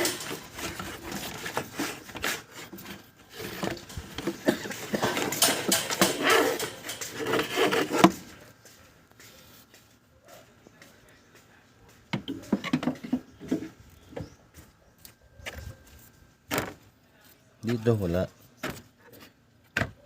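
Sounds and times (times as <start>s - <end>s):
pulley bearing rattling and scraping: 0.0s - 8.3s.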